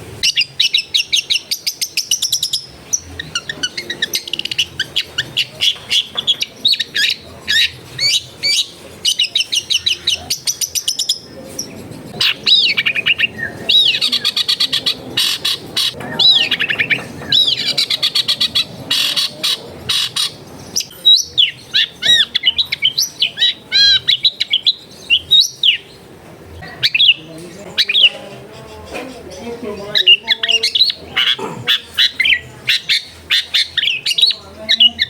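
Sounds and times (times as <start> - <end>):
shrike singing: 0.0 - 35.0.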